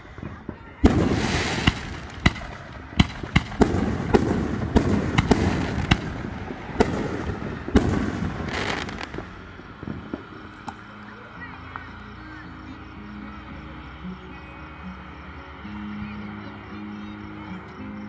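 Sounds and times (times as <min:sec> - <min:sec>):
fireworks bangs and pops: 0:00.0 - 0:11.1.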